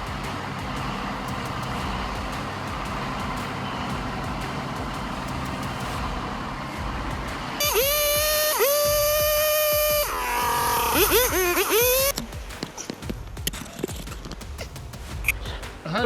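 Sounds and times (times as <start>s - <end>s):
heavy truck engine running: 0.0s - 12.1s
loud truck horn blast: 7.6s - 12.1s.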